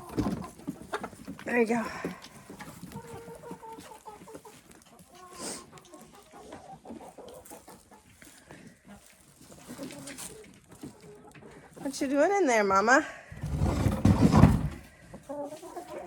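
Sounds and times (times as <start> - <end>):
hens clucking: 0.0 - 12.4, 13.3 - 16.0.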